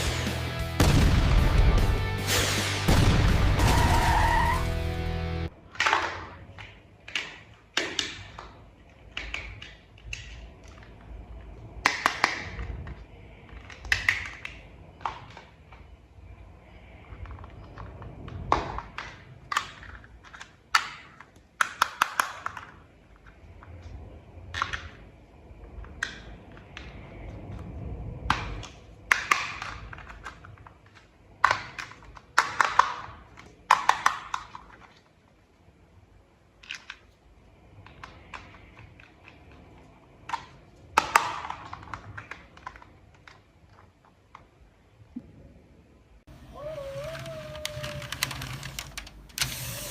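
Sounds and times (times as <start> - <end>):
plastic toy parts clicking: 5.6 - 11.0, 11.8 - 15.8, 17.2 - 23.4, 28.3 - 35.2, 36.6 - 37.2, 46.6 - 49.9.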